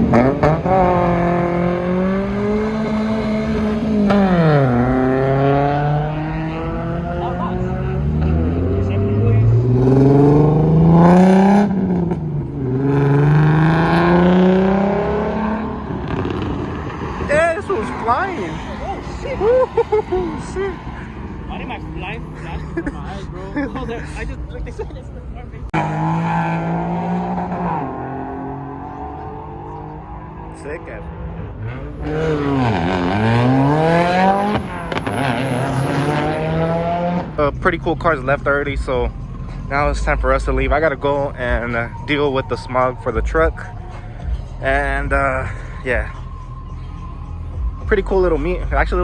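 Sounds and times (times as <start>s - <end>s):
car engine accelerating hard: 0.0s - 49.0s.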